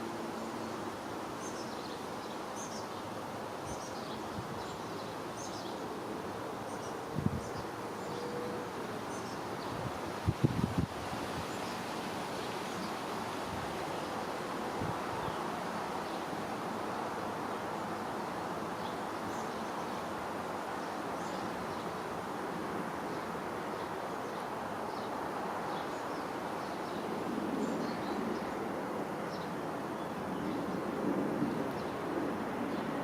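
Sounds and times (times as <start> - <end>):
outdoor background noise: 0.0 - 33.0.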